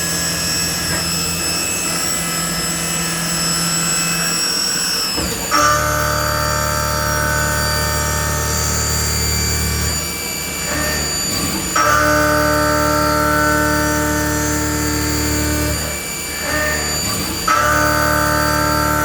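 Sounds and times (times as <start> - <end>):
milling cutter whine: 0.0 - 19.0.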